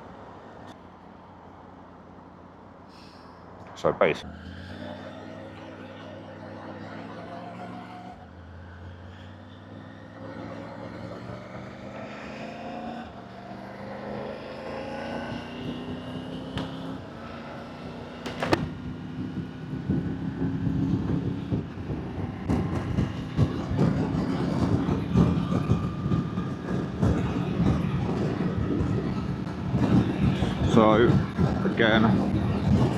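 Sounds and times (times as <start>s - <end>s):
motorbike engine accelerating: 4.3s - 32.9s
sharp click: 18.3s - 18.8s.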